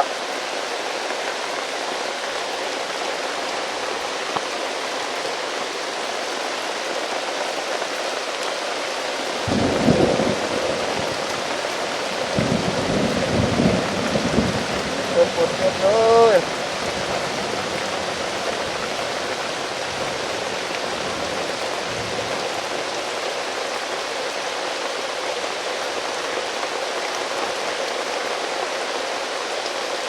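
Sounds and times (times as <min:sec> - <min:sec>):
heavy rain: 0:00.0 - 0:30.0
thunder rumbling: 0:09.4 - 0:22.7.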